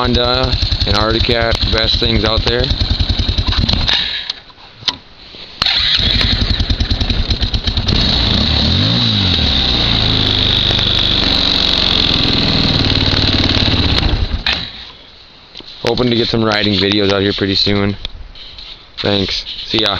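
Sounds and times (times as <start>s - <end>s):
atv engine running and revving: 0.0s - 3.9s, 6.0s - 14.5s.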